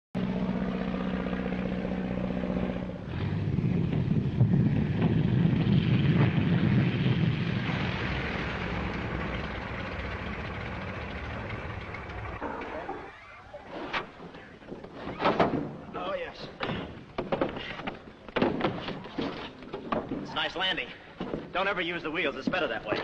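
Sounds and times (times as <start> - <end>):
light airplane engine drone: 0.2 - 15.2
knocks: 16.6 - 20.4.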